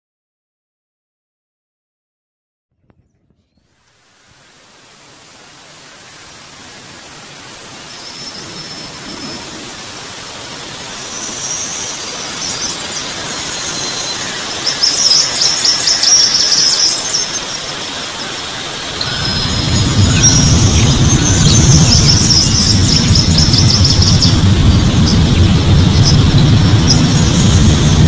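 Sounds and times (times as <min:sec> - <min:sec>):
steady outdoor hiss: 0:03.0 - 0:28.0
birds chirping: 0:05.9 - 0:28.0.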